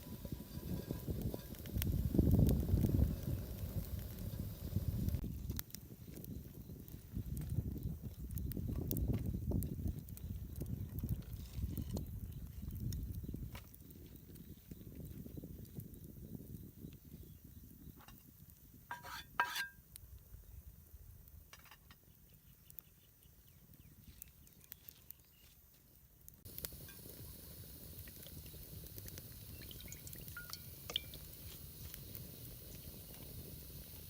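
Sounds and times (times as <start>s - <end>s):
cookware clinking: 18.9s - 19.8s
faint hiss: 25.6s - 34.0s.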